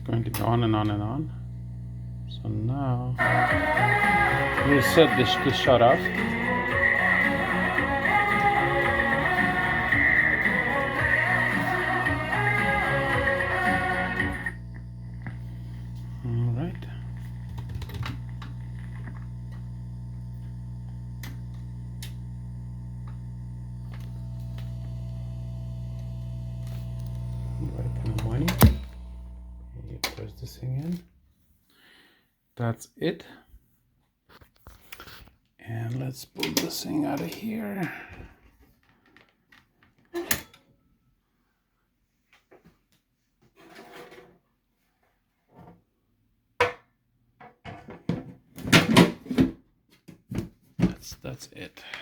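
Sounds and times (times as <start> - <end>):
record player electrical hum: 0.0 - 31.0.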